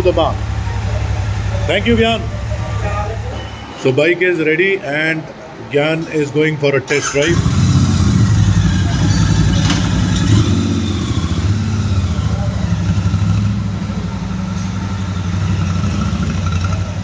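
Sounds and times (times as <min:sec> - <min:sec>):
motorcycle engine throbbing: 0:07.3 - 0:17.0.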